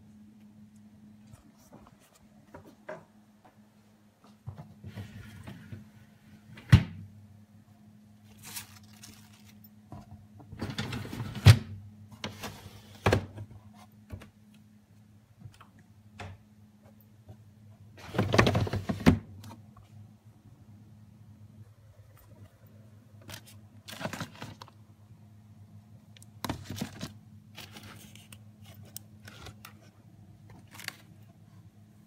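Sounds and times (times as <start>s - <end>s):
steady low hum: 0.0s - 32.0s
rustling: 8.2s - 9.7s.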